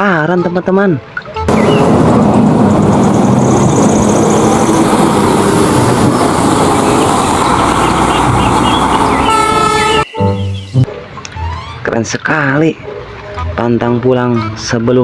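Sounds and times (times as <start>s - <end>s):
vehicle engine running: 1.5s - 9.6s.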